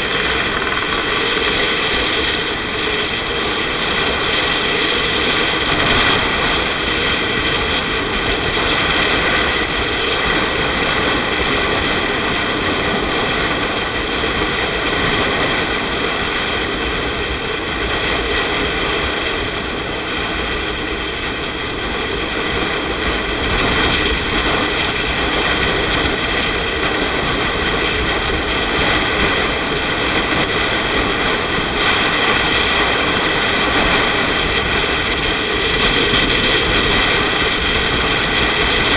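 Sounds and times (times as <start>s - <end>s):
motorcycle engine running: 0.0s - 17.9s
wind rushing on microphone: 0.0s - 38.9s.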